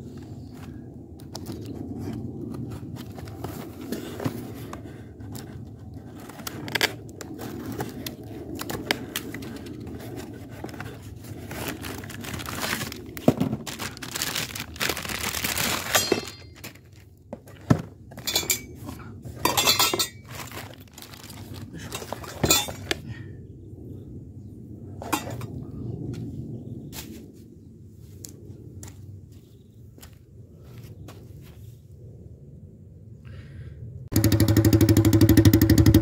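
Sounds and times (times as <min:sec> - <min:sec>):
plastic wrapping rustling: 0:06.2 - 0:17.1, 0:20.2 - 0:22.9
metal parts clinking: 0:15.4 - 0:16.8, 0:18.1 - 0:23.0.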